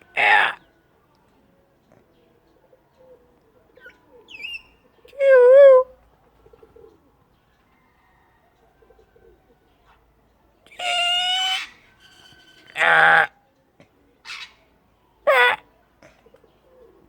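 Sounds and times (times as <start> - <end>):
parrot squeak: 10.8 - 13.1.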